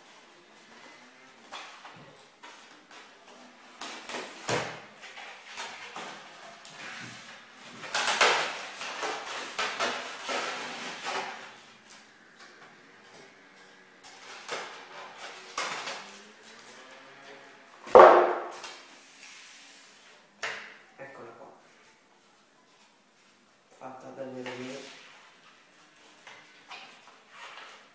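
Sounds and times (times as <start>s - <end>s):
plastic and cardboard rustling: 0.0s - 12.2s, 14.0s - 16.9s
sharp loud knock: 17.9s - 18.6s.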